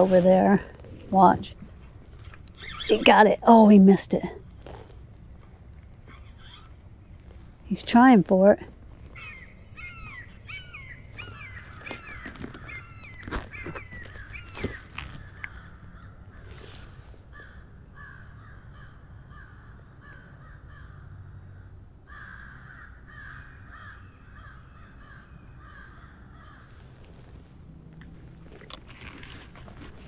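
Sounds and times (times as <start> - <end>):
low steady hum: 0.0 - 30.0
bird calling repeated notes: 2.5 - 3.4, 6.0 - 6.8, 9.0 - 16.6.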